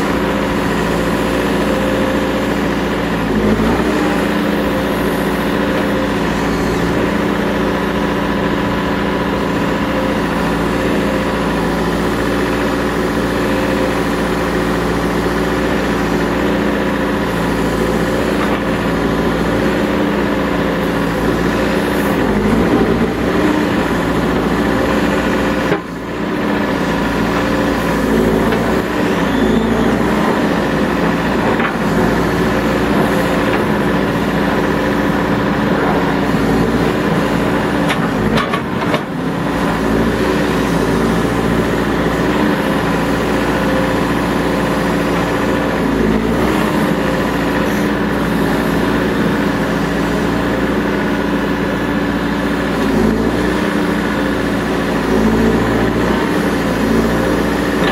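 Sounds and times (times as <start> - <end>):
backhoe diesel engine running: 0.0 - 57.9.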